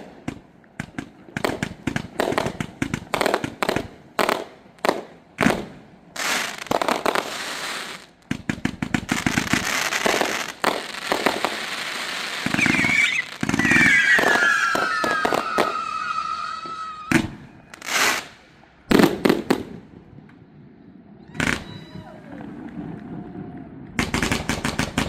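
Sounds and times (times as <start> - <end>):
loud firework bangs: 0.0 - 20.1, 21.4 - 25.0
fireworks crackling and popping: 0.0 - 20.5, 21.3 - 25.0
whistling firework shell: 12.4 - 18.3.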